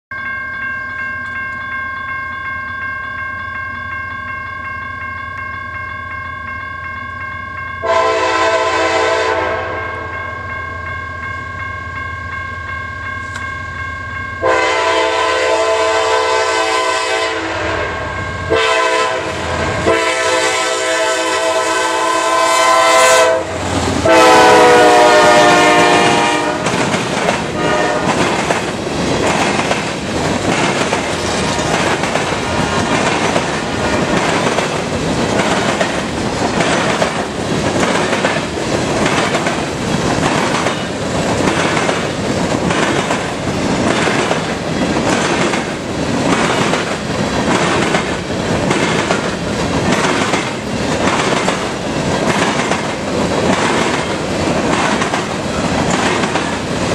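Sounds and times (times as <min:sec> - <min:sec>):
locomotive air horn blast: 0:07.8 - 0:10.1, 0:14.4 - 0:26.7, 0:27.6 - 0:28.2
train wheels clacking over rail joints: 0:23.8 - 0:56.9.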